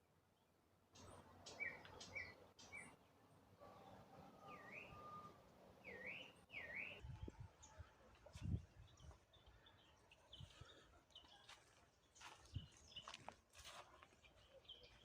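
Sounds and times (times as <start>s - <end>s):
faint birdsong: 0.0s - 15.0s.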